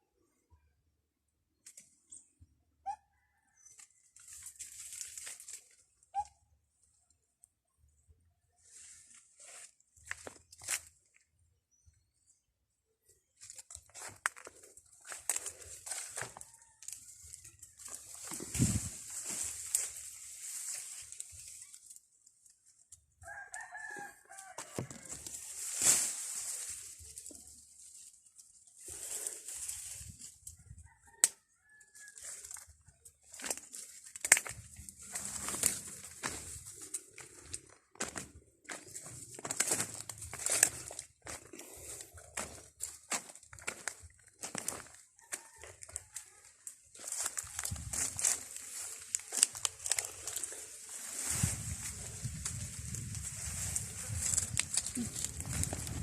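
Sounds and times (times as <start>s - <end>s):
rustling noise: 13.4s - 22.0s, 24.4s - 30.6s, 32.2s - 45.0s, 45.7s - 56.0s.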